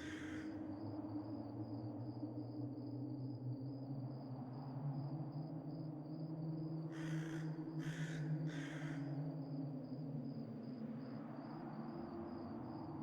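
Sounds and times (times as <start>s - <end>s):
crow cawing: 0.0s - 0.4s.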